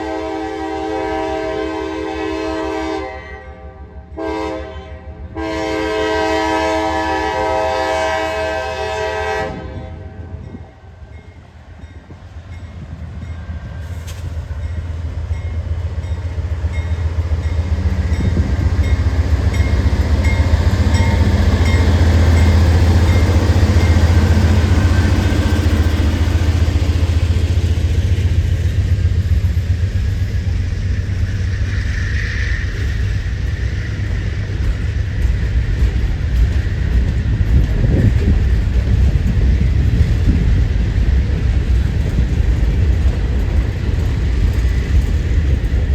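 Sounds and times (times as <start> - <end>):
train rolling past: 0.0 - 45.9
wind buffeting microphone: 9.4 - 31.9, 32.7 - 45.9.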